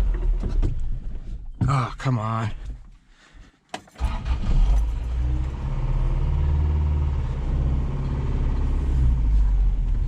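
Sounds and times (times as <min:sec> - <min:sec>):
truck engine rumbling: 0:04.0 - 0:10.0.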